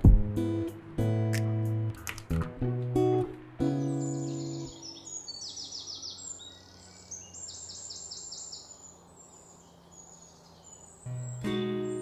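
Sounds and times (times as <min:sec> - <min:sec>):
faint outdoor background noise: 0:00.0 - 0:12.0
bird chirping: 0:03.6 - 0:12.0.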